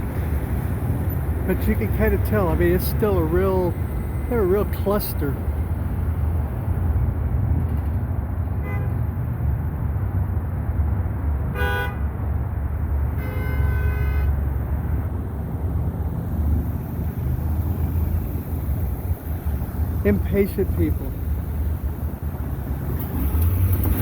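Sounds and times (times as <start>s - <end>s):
low rumble of traffic: 0.0s - 24.0s
car horns honking: 8.5s - 9.1s, 11.5s - 12.2s, 13.0s - 15.1s.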